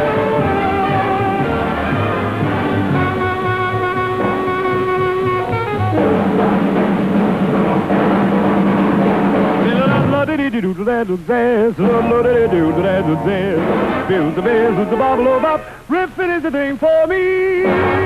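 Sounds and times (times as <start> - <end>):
swing jazz band with brass: 0.0 - 10.2, 11.8 - 15.6
person singing with vibrato: 9.6 - 18.0.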